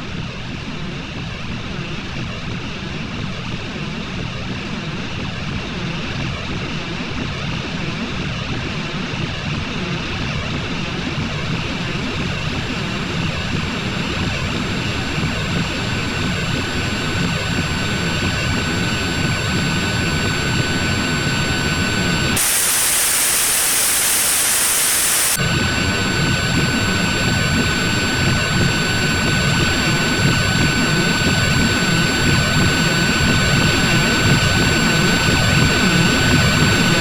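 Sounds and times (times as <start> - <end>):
hissing static: 11.6 - 37.0.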